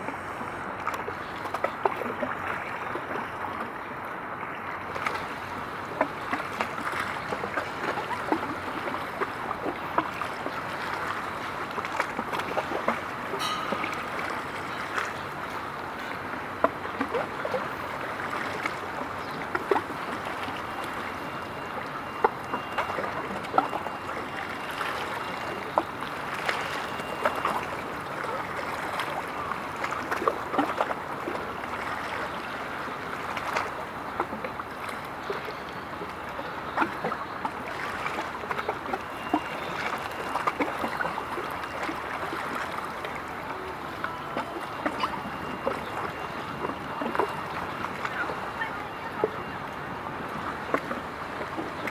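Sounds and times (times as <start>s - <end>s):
small water splashes: 0.0s - 51.9s
water washing at shore: 0.0s - 51.9s.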